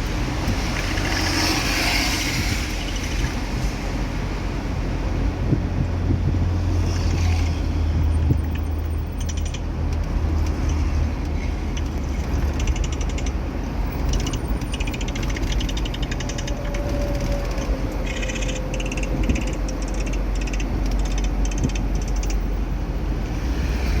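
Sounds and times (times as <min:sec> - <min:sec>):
car engine and road noise: 0:00.0 - 0:24.0
rapid high-pitched ticking: 0:08.5 - 0:09.7, 0:11.7 - 0:22.9.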